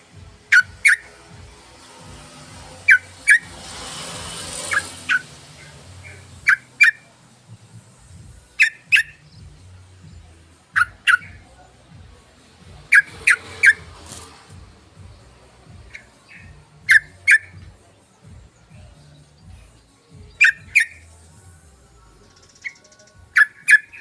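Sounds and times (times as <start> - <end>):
bulbul calling: 0.4 - 1.2, 2.7 - 3.6, 4.5 - 7.1, 8.4 - 9.6, 10.7 - 11.4, 12.7 - 14.2, 15.8 - 17.8, 20.2 - 21.2, 22.2 - 24.0.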